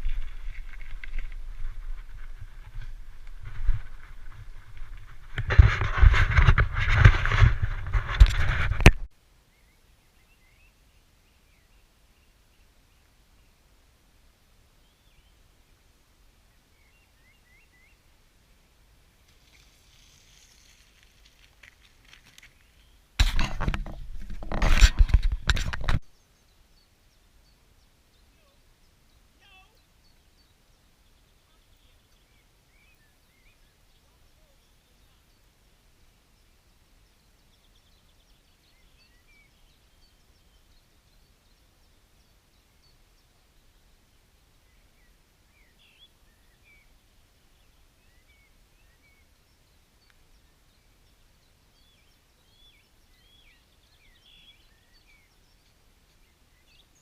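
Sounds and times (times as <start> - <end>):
soft rustling hiss: 0.0 - 57.0
faint bird chirps: 26.1 - 57.0.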